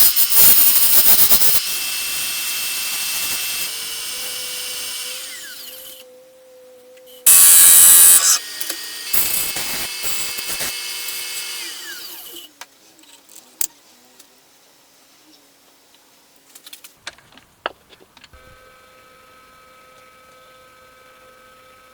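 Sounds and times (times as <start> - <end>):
power tool cutting wood: 0.0 - 6.1, 7.2 - 12.5.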